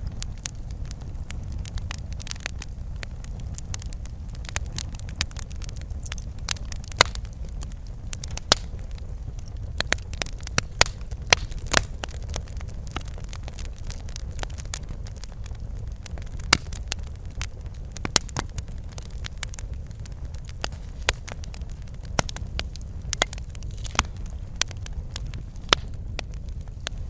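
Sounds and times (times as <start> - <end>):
fire crackling and popping: 0.0 - 27.0
wood fire flames rumbling: 0.0 - 27.0.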